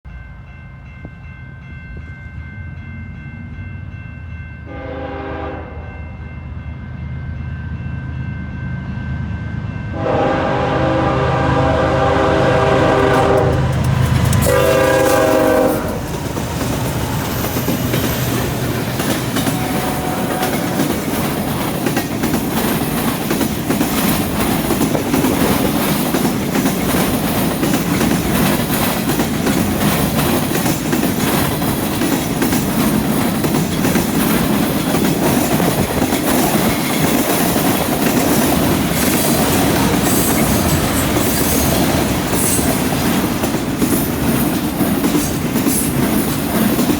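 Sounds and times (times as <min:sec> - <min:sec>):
train rumbling past: 0:00.1 - 0:46.9
locomotive horn: 0:04.7 - 0:06.1, 0:09.9 - 0:16.2, 0:19.4 - 0:21.1
wheels clattering over rail joints: 0:12.9 - 0:46.9.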